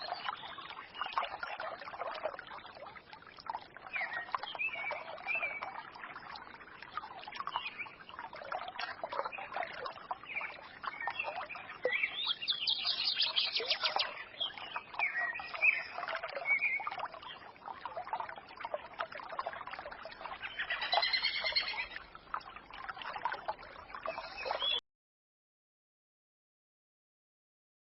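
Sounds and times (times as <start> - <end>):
forest stream murmur: 0.0 - 24.8
songbirds chirping and singing: 3.8 - 17.8, 19.7 - 22.0, 23.2 - 24.8.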